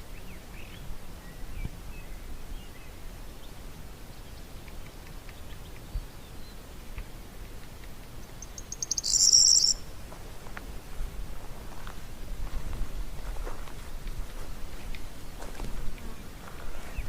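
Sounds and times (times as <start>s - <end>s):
faint bird chirps: 8.2s - 10.0s
faint low rumble: 9.7s - 17.0s.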